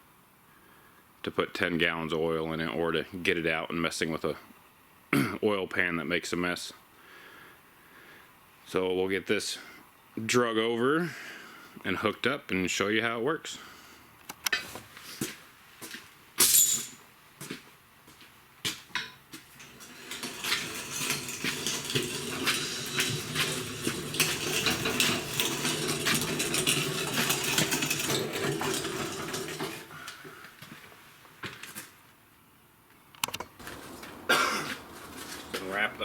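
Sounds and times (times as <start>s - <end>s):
wheeled cart rattling across floor: 19.6s - 30.4s, 33.6s - 36.0s.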